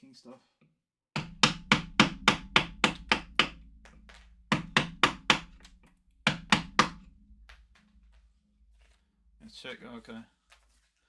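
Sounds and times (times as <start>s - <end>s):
mallet striking chisel into wood: 1.2s - 7.1s.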